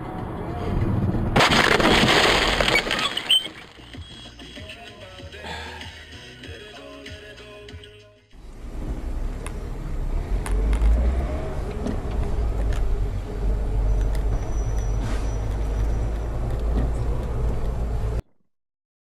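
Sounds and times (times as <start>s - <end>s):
vehicle engine and road rumble: 0.0s - 4.6s, 8.3s - 18.2s.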